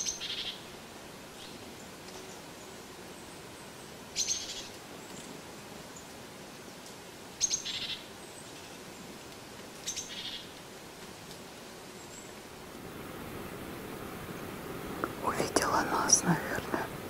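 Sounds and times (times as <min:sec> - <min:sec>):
songbird chirping: 0:01.3 - 0:09.1, 0:09.8 - 0:10.6.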